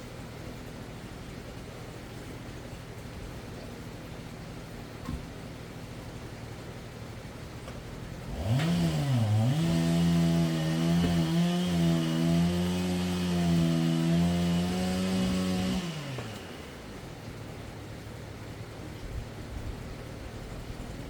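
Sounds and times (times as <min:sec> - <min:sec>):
chainsaw engine revving: 0:08.2 - 0:17.2.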